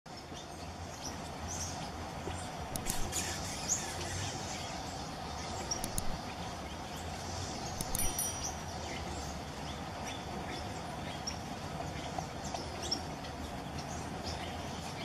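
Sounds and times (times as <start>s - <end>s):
steady background hum: 0.1s - 15.0s
sharp clicks: 2.7s - 3.3s, 5.7s - 6.2s, 7.7s - 8.5s.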